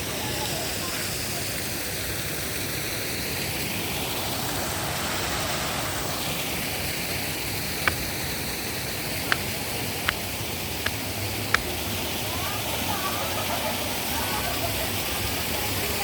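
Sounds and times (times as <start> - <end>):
short sharp clicks: 7.8 - 11.7.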